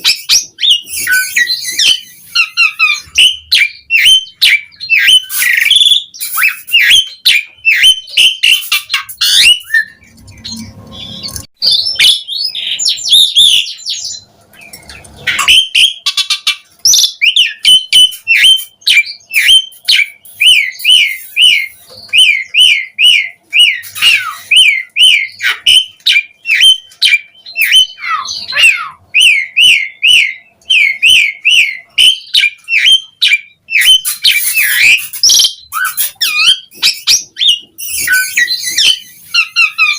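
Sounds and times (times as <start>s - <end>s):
starling singing chirps and whistles: 0.0s - 39.9s.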